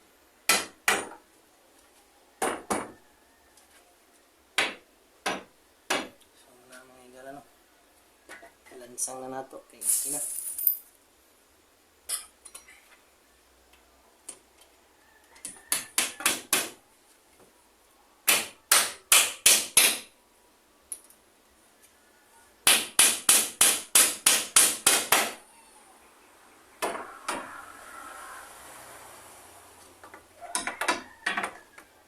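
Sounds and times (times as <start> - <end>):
hammer driving nails: 15.4 - 16.8, 18.3 - 20.1, 22.6 - 25.4.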